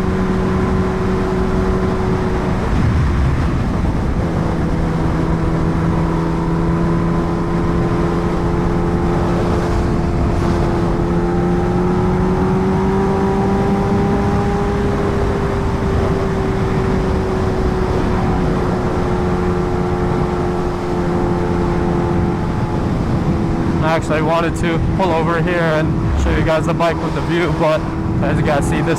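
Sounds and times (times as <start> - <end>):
motorcycle engine cruising: 0.0 - 28.9
wind and road noise: 0.0 - 28.9.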